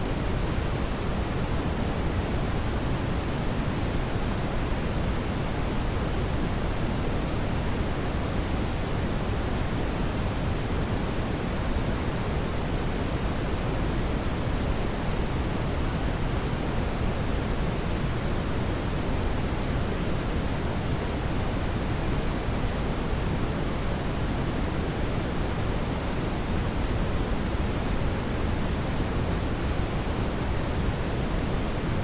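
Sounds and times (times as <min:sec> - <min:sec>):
brown noise hiss: 0:00.0 - 0:32.0.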